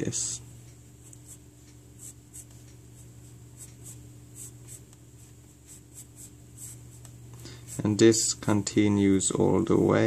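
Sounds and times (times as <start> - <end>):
low steady hum: 0.0 - 10.0
pencil scratching on paper: 2.0 - 2.7, 3.6 - 8.0.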